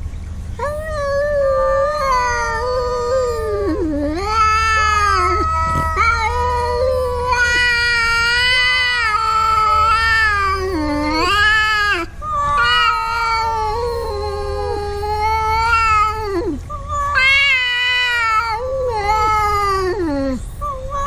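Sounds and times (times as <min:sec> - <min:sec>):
cat yowling: 0:00.6 - 0:21.0.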